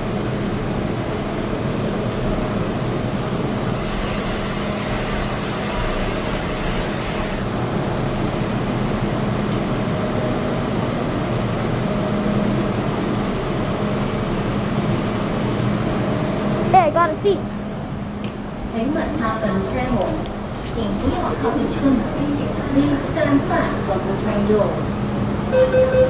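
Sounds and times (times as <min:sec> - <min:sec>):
air conditioning hum: 0:07.0 - 0:26.0.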